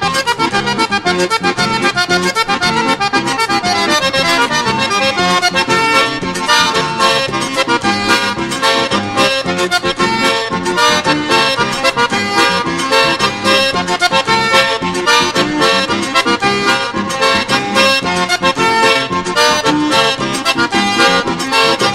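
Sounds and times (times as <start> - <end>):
accordion dance tune: 0.0 - 21.9.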